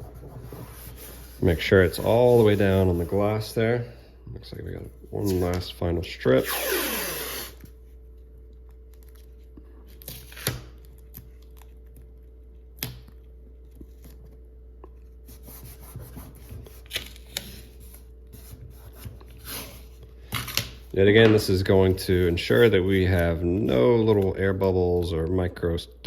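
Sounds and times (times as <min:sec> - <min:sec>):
tape rustling and rubbing: 0:00.0 - 0:03.4
faint steady hum: 0:00.0 - 0:26.0.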